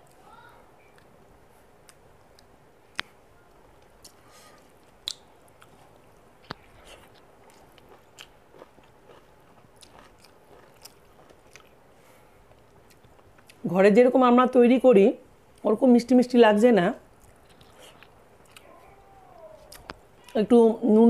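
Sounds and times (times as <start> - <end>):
person chewing food: 3.9 - 13.6, 17.2 - 20.4
sharp mouth clicks: 5.0 - 5.7.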